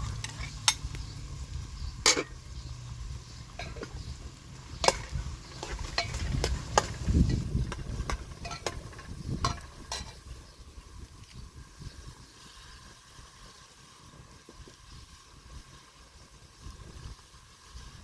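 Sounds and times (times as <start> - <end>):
food sizzling in a pan: 0.0 - 18.0
utensil clicking against pan: 4.8 - 10.2.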